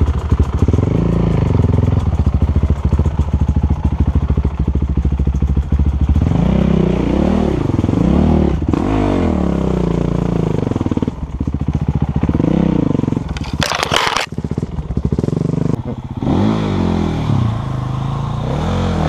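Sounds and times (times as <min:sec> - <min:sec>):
dirt bike engine revving: 0:12.2 - 0:19.0.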